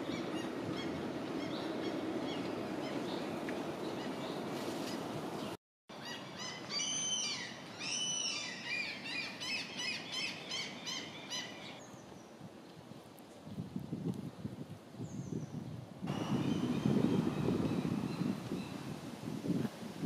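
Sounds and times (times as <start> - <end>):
birds calling: 0.0 - 12.3, 16.1 - 18.9
steady outdoor noise: 0.0 - 20.0.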